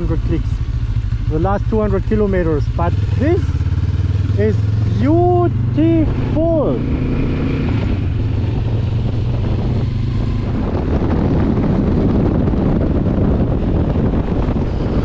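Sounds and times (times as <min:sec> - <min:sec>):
motorcycle engine cruising: 0:00.0 - 0:15.0
wind buffeting microphone: 0:00.0 - 0:15.0.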